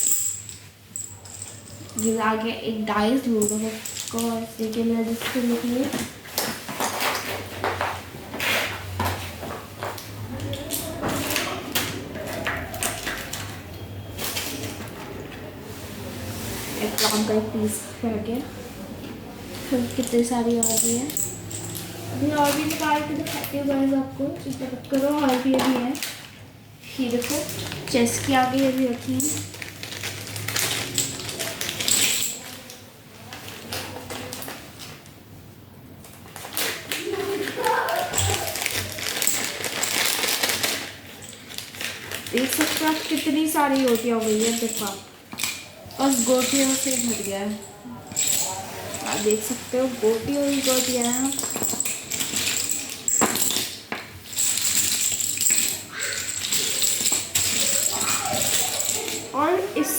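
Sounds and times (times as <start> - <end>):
plastic game pieces clattering: 9.8 - 13.6, 19.7 - 23.6, 24.4 - 26.3, 27.0 - 32.8, 36.3 - 59.4
plastic game pieces clicking: 50.3 - 59.3.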